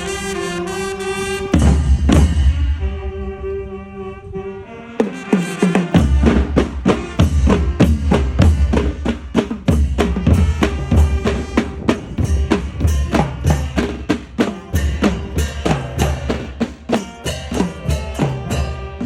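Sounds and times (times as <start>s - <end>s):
brass chord: 0.0s - 8.8s, 10.0s - 16.3s, 16.9s - 19.0s
bass drum and snare beat: 5.9s - 19.0s.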